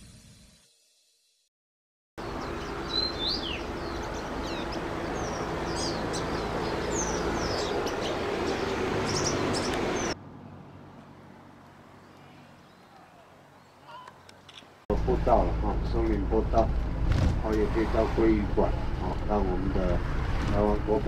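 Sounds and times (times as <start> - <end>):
small birds chirping: 2.2 - 14.8.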